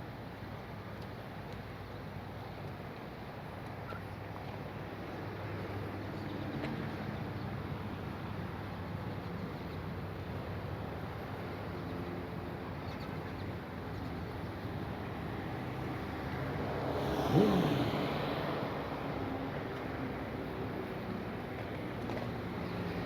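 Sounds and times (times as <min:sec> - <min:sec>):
passing cars: 0:13.6 - 0:23.0.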